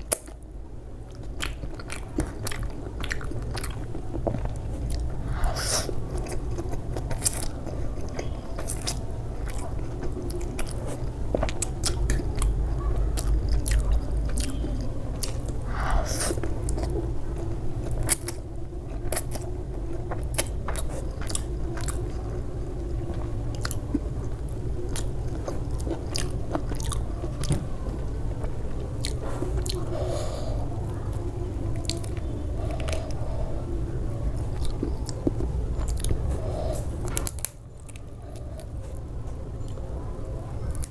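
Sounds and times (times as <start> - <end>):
person chewing crunchy food: 1.0 - 33.5, 34.4 - 39.8.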